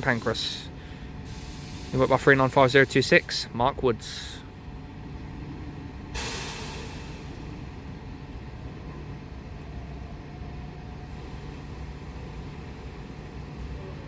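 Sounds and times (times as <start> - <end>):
sharp air hiss: 0.0 - 2.4, 6.2 - 7.6
train equipment humming with whine: 0.0 - 14.0.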